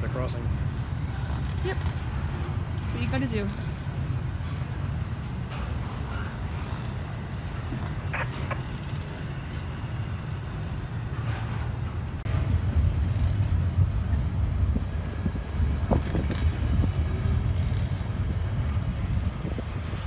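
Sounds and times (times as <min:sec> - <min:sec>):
freight cars rumbling on rails: 0:00.0 - 0:20.0.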